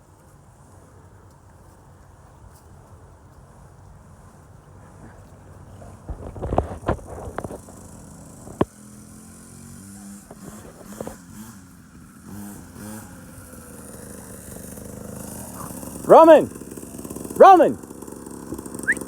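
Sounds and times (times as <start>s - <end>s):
small motorcycle engine revving: 3.5s - 19.0s.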